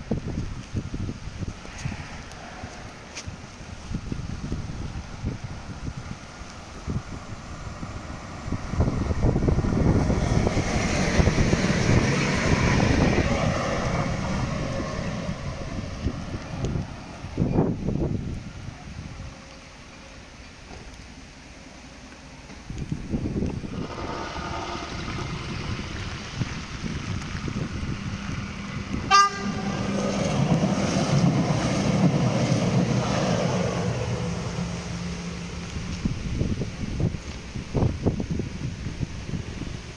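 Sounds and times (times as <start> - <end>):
wind buffeting microphone: 0.0 - 19.5, 22.5 - 39.9
train passing close by: 0.0 - 39.9
train horn toot: 29.0 - 30.0.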